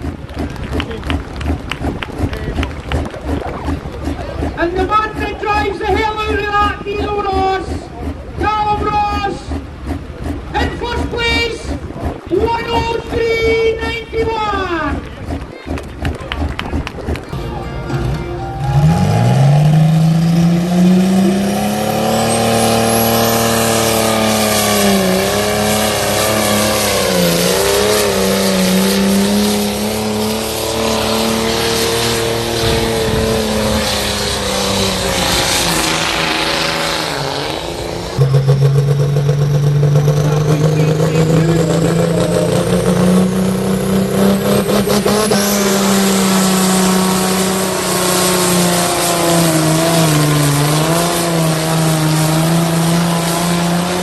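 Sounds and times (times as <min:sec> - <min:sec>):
tractor engine at high revs: 0:00.0 - 0:17.4, 0:18.0 - 0:54.0
loud engine run at lower pitch: 0:00.0 - 0:54.0.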